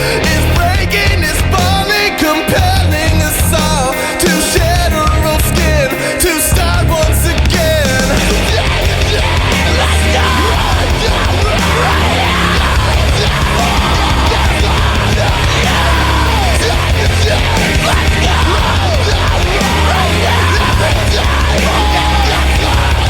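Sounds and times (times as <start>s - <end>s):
pop-punk rock music: 0.0s - 23.0s
person yelling vocals: 7.8s - 23.0s.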